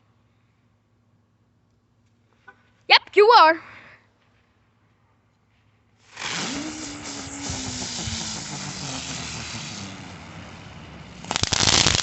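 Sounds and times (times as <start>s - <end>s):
firework hissing and whining: 6.0s - 12.0s
motorcycle-like vroom: 6.1s - 12.0s.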